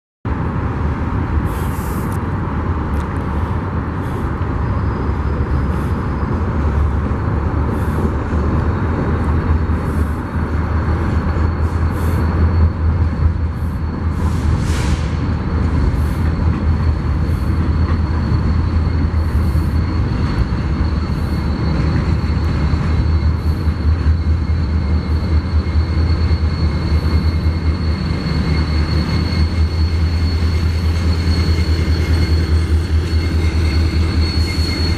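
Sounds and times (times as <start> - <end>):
freight train rumbling past: 0.3 - 34.9
thin high squeal: 16.0 - 34.9.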